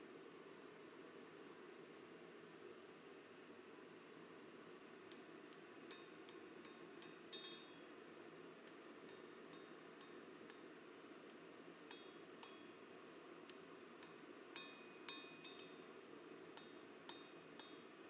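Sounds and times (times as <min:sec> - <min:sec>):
steady low hiss: 0:00.0 - 0:18.0
light metal clinks: 0:05.1 - 0:08.0, 0:08.7 - 0:10.8, 0:13.5 - 0:15.9.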